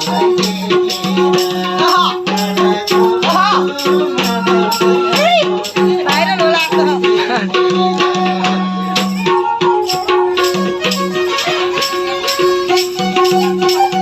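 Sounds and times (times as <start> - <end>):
shaken jingle rattle: 0.0 - 7.4, 8.7 - 14.0
hand drum strokes: 0.0 - 14.0
bowed string melody: 3.5 - 14.0.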